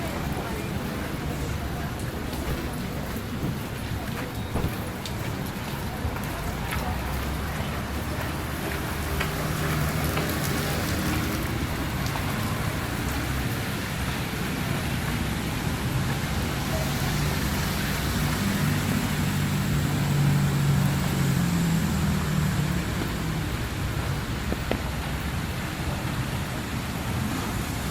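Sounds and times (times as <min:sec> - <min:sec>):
heavy rain hiss: 0:00.0 - 0:27.9.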